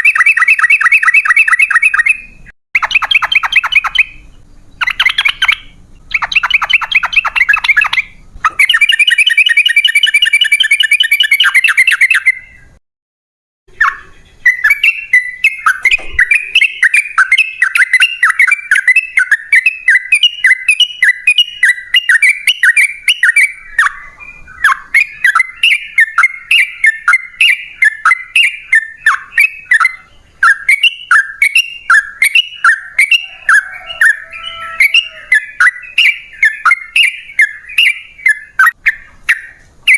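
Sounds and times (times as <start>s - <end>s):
bird chirping notes: 0.0s - 12.8s, 13.7s - 39.9s
bird chattering rattles: 4.8s - 12.3s, 13.8s - 23.5s.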